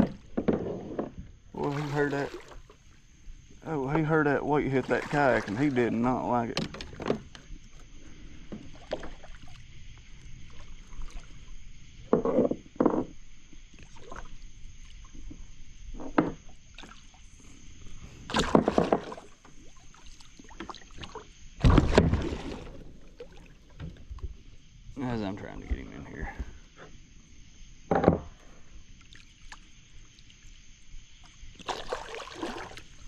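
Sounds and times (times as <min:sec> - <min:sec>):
knocks and thumps on kayak: 0:00.0 - 0:01.3, 0:06.5 - 0:07.5, 0:12.0 - 0:13.2, 0:15.3 - 0:16.6, 0:18.3 - 0:19.6, 0:20.6 - 0:23.0, 0:27.9 - 0:28.4
fish thrashing in water: 0:04.7 - 0:05.9, 0:18.3 - 0:23.6, 0:31.6 - 0:33.0.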